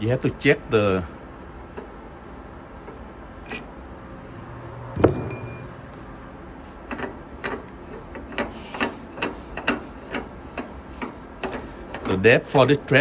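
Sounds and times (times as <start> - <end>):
sharp metallic clack: 4.9 - 6.0.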